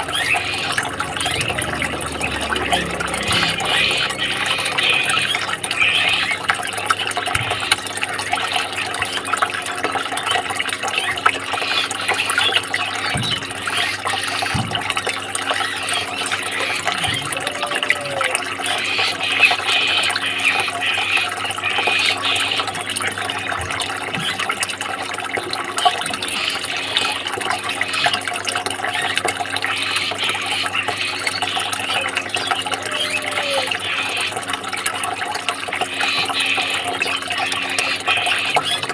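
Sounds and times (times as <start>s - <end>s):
faint steady hum: 0.0s - 9.9s
running splashing water: 0.0s - 38.9s.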